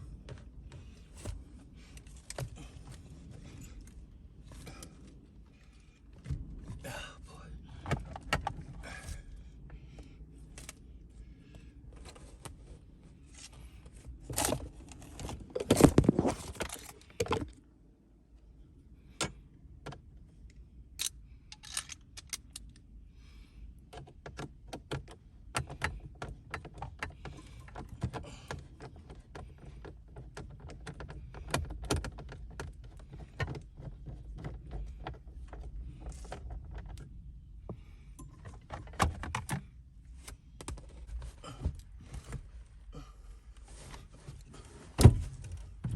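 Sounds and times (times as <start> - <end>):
metal tools clinking and rattling: 21.0 - 22.6.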